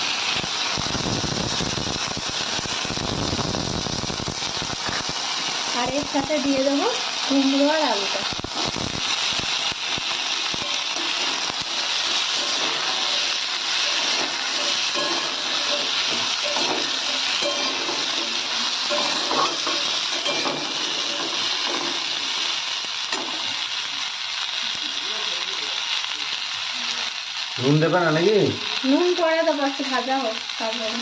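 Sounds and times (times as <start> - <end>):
vegetables sizzling in hot oil: 0.0 - 31.0
metal spatula scraping pan: 10.6 - 22.4.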